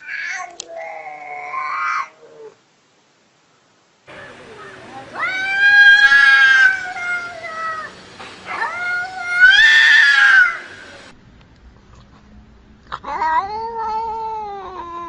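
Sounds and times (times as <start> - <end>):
cat yowling: 0.0 - 2.6, 4.3 - 7.9, 8.5 - 10.8, 12.9 - 15.0.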